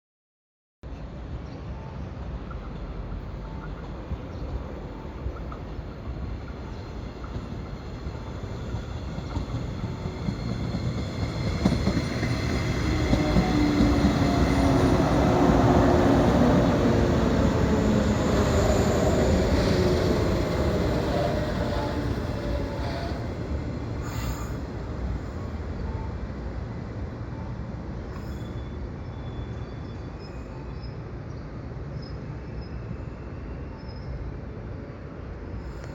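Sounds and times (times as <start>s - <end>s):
electric train braking: 10.2s - 24.7s
wheel and brake squeal: 24.0s - 24.6s, 28.1s - 30.9s.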